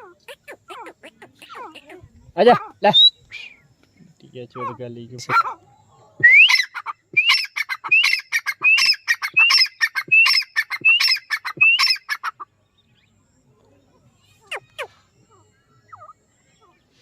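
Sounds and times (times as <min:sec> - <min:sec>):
francolin harsh calls: 0:00.0 - 0:03.7, 0:04.4 - 0:12.5.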